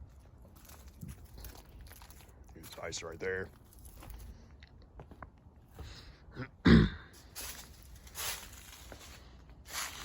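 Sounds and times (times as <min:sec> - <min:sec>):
person clearing throat: 0:06.4 - 0:07.2.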